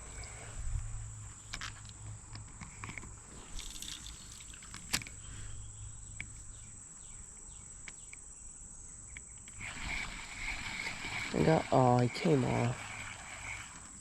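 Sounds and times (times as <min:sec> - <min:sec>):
high-pitched insect buzz: 0:06.6 - 0:14.0.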